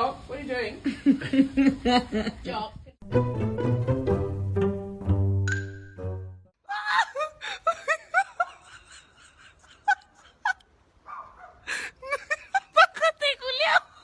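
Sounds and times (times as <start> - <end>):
music with plucked bass: 3.0 - 6.4
person laughing: 6.7 - 10.7, 11.7 - 13.2.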